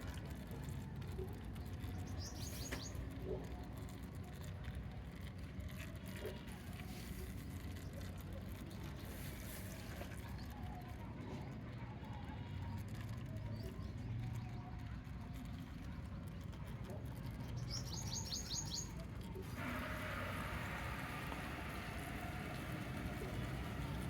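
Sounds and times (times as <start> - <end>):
low outdoor rumble: 0.0 - 24.0
bird chirps: 17.5 - 19.0.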